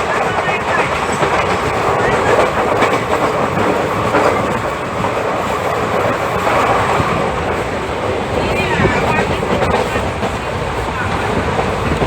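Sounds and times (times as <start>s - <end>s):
train wheels rushing on rail: 0.0s - 12.0s.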